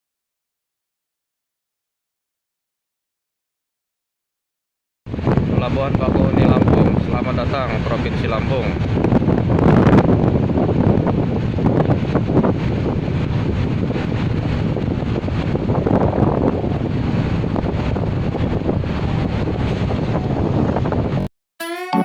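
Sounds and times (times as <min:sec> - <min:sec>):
wind buffeting microphone: 0:05.1 - 0:21.3.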